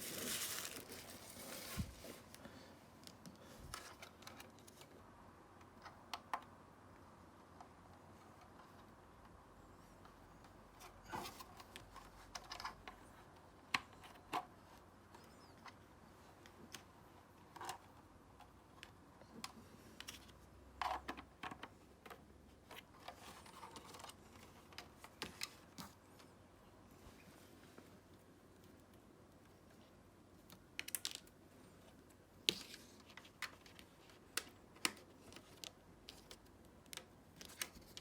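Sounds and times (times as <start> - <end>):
hands rustling: 0.0 - 2.4.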